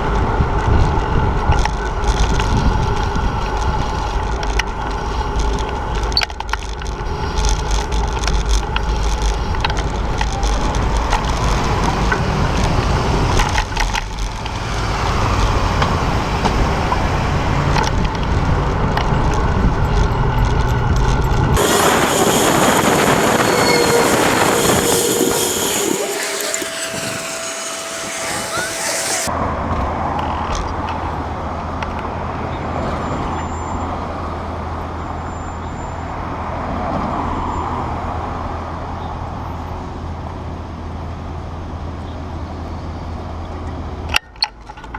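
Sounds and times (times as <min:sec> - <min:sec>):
city street traffic: 0:00.0 - 0:27.2, 0:28.5 - 0:44.9
hissing traffic: 0:21.6 - 0:29.3.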